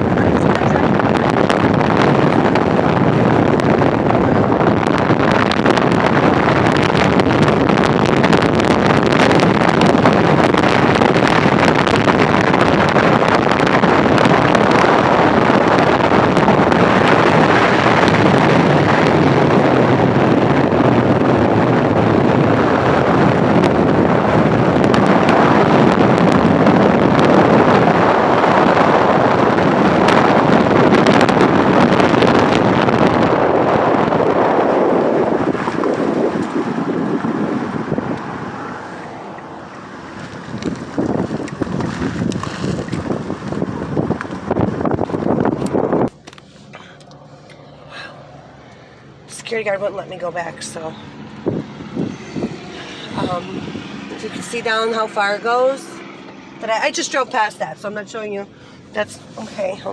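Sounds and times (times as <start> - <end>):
car tyre and road noise: 0.0 - 59.9
wind on microphone: 0.0 - 59.9.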